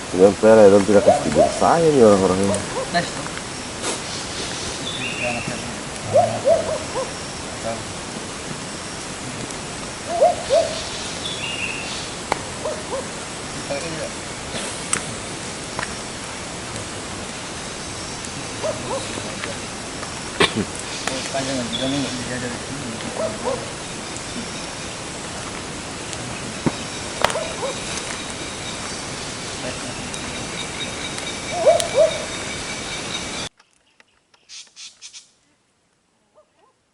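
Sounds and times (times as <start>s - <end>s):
faint high insect tones: 0.0s - 33.5s
steady hiss: 0.0s - 33.5s
owl hooting: 2.6s - 7.7s, 10.0s - 13.1s, 31.5s - 32.5s
high bird calls: 26.7s - 35.3s.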